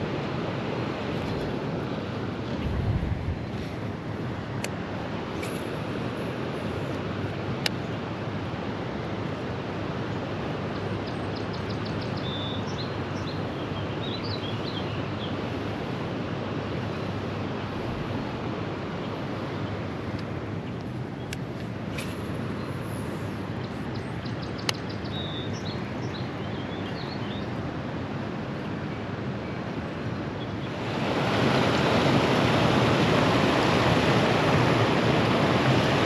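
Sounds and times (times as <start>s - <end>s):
water rushing: 0.0s - 23.7s, 27.4s - 36.0s.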